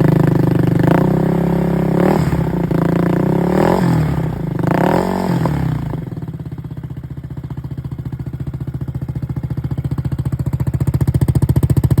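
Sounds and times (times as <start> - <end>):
scooter engine idling: 0.0 - 12.0.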